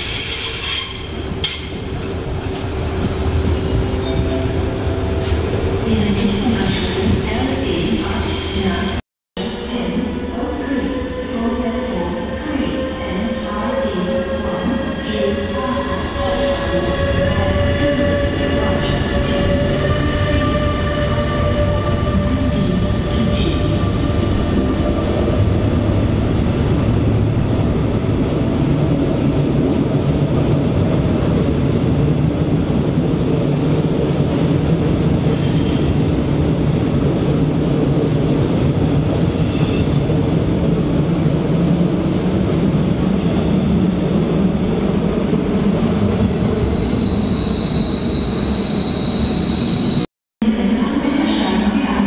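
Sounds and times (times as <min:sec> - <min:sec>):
train rumbling: 0:00.0 - 0:09.0, 0:13.1 - 0:52.0
high wheel squeal: 0:46.6 - 0:50.1.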